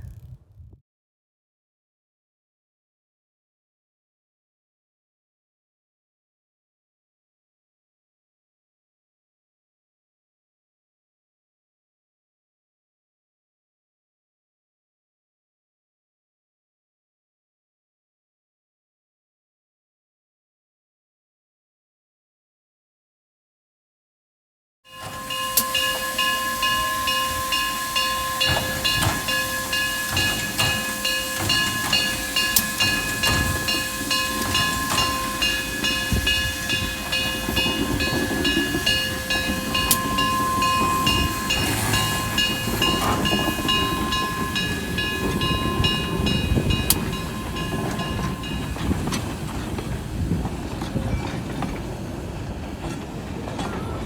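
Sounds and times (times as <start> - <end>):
train wheel squeal: 24.9 - 54.0
train wheels clattering on rails: 24.9 - 54.0.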